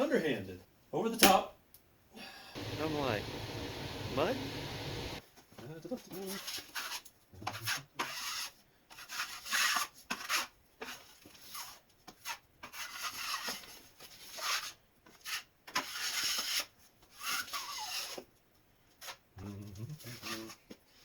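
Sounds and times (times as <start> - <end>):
drywall knife scraping compound: 6.3 - 18.3, 20.0 - 20.7.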